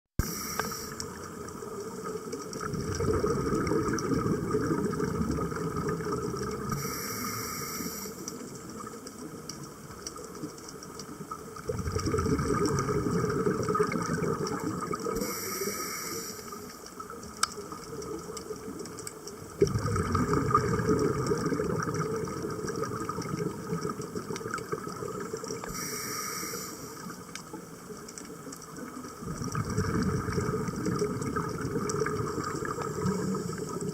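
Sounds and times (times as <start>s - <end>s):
regulator inhale hiss: 0.2s - 1.3s, 6.7s - 8.6s, 15.1s - 16.8s, 25.6s - 27.2s
exhaled bubbles underwater: 0.2s - 33.9s.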